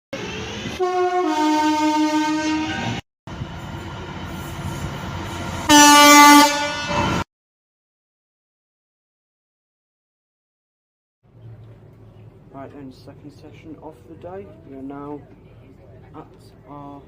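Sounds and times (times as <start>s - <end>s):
two-tone train horn: 0.7s - 3.0s, 5.6s - 7.2s
single-tone horn blast: 0.8s - 3.0s, 5.6s - 7.3s.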